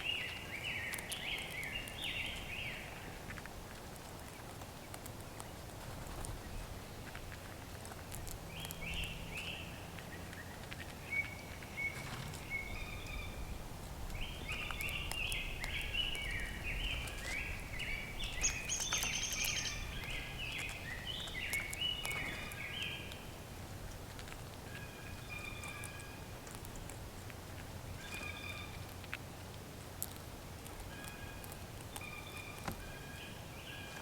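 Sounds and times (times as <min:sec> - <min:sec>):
birds chirping: 0:00.0 - 0:03.2, 0:08.5 - 0:23.4.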